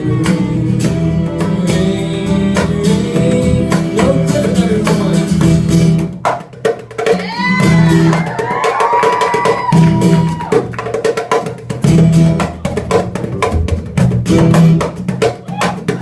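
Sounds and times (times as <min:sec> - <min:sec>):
strummed guitar chords: 0:00.0 - 0:06.2
drums and percussion: 0:00.0 - 0:16.0.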